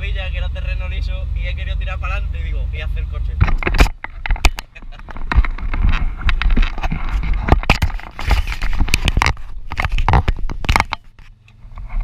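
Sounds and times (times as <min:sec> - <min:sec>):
engine and road rumble: 0:00.0 - 0:12.0
stones knocking against car body: 0:03.4 - 0:11.2
tyres crunching on gravel: 0:03.4 - 0:11.4.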